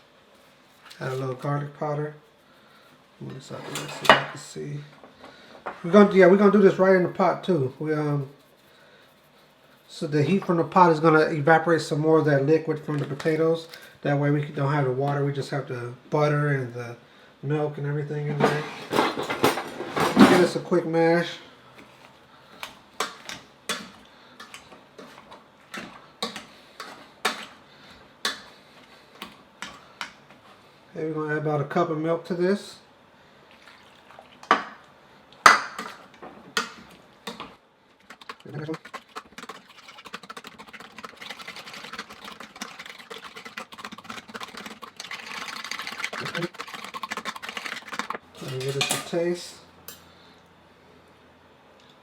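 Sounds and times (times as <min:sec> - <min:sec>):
utensil mashing potatoes in a pot: 0:22.6 - 0:30.2, 0:35.8 - 0:48.6
wet squelching of potatoes: 0:36.8 - 0:48.2.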